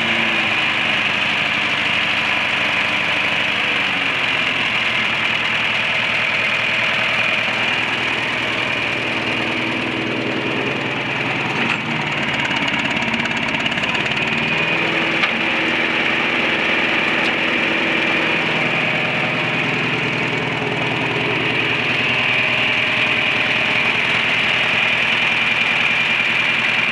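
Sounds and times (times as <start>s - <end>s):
tractor engine idling: 0.0s - 26.9s.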